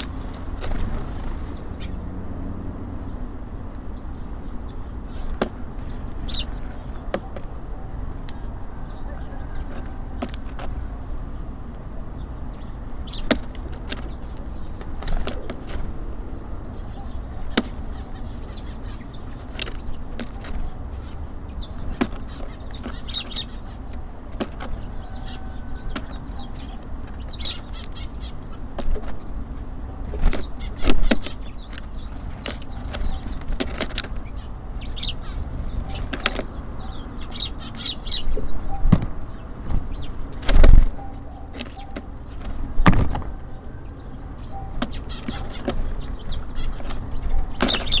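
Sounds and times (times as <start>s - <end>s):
birds wings flapping: 0.0s - 1.6s, 13.2s - 16.0s, 38.9s - 43.5s
birds tapping and pecking: 0.0s - 48.0s.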